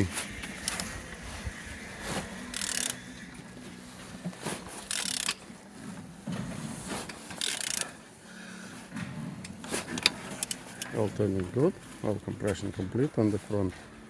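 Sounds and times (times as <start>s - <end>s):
engine turning rubbing and clicking: 0.0s - 8.0s.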